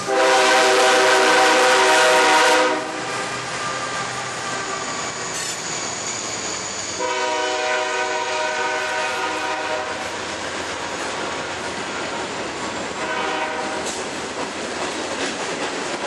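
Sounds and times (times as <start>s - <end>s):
train horn: 0.0s - 5.6s, 7.0s - 10.2s, 13.0s - 14.0s
diesel locomotives passing: 0.0s - 16.0s.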